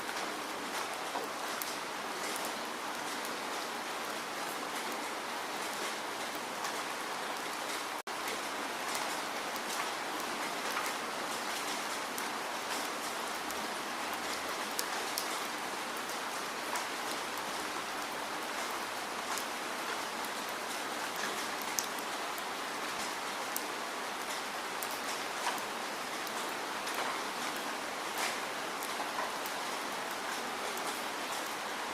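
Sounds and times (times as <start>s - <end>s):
rain falling: 0.0s - 31.9s
raindrop ticks: 7.7s - 15.4s, 16.0s - 31.6s.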